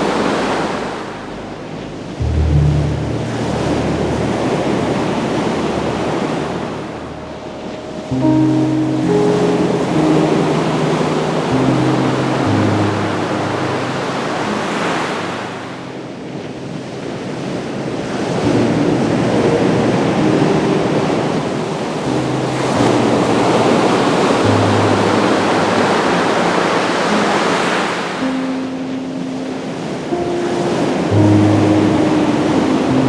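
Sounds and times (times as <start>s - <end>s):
ocean waves washing on beach: 0.0s - 33.0s
soft low held music notes: 1.2s - 14.6s.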